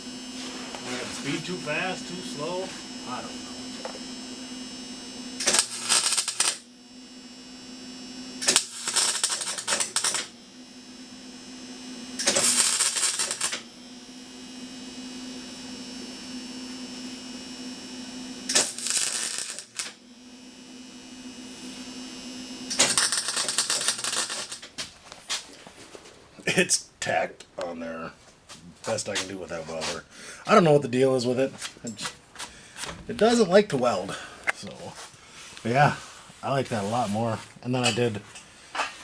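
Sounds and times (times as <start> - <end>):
welder steady hum: 0.0 - 39.0
welder crackling and sputtering: 0.7 - 3.5, 5.3 - 6.7, 8.4 - 10.4, 12.2 - 13.7, 18.5 - 20.0, 22.7 - 25.6.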